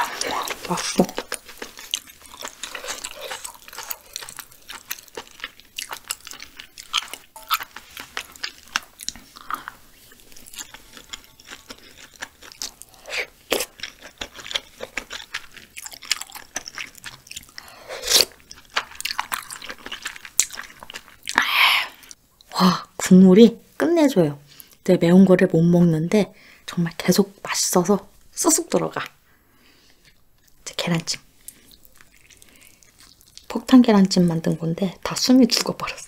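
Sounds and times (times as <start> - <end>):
person chewing food: 0.0 - 22.2, 29.7 - 30.6, 31.4 - 33.5.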